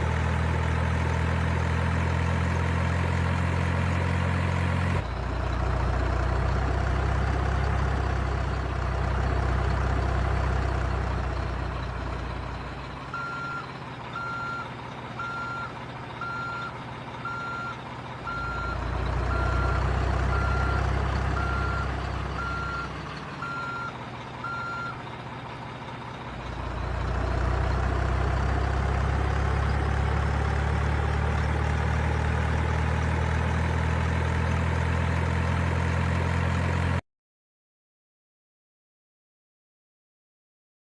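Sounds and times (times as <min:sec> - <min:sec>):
diesel engine sound: 0:00.0 - 0:37.0
reversing beeper: 0:13.1 - 0:25.0.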